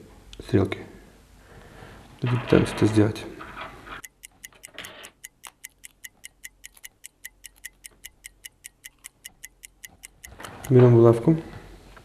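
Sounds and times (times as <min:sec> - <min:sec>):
watch ticking: 0:04.0 - 0:11.0.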